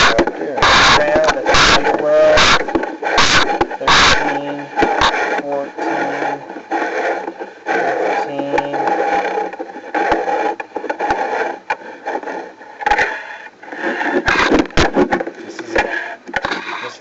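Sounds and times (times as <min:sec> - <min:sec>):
cable scraping in pipe: 0:00.0 - 0:17.0.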